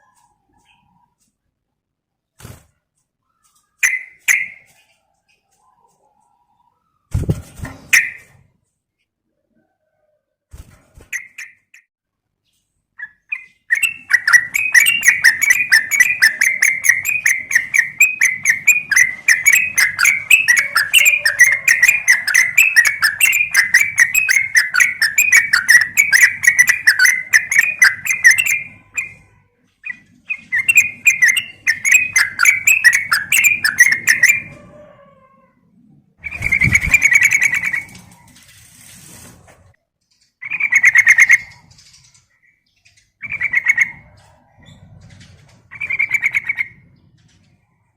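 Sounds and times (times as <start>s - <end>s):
bird chattering call: 13.7s - 29.3s, 29.9s - 34.5s.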